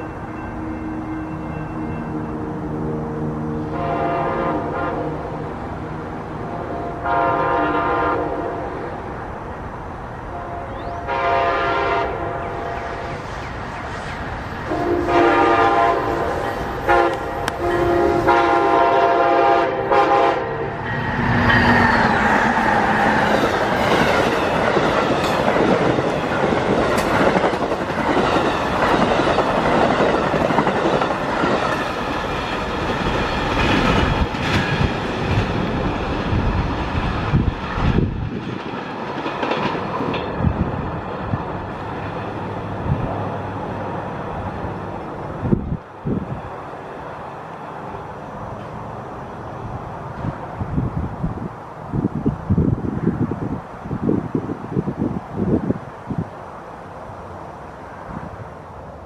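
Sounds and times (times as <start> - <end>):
train horn blast: 0.0 - 5.5, 6.4 - 9.0, 10.3 - 13.1, 14.7 - 21.8
train passing with loud rumble: 0.0 - 59.0
wheels clattering on rails: 21.1 - 42.5.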